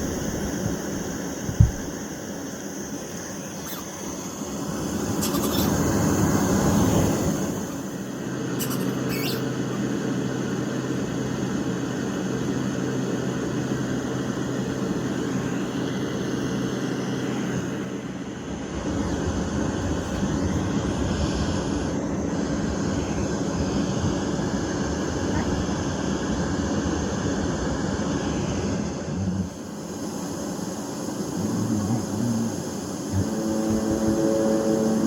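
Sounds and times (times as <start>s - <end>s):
rushing noise with low rumble: 0.0s - 3.3s
faint low hum: 27.3s - 35.0s.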